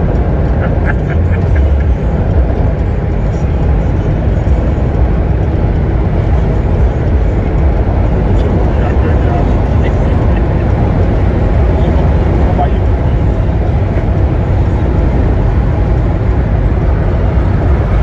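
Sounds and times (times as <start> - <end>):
vehicle rumble: 0.0 - 18.0.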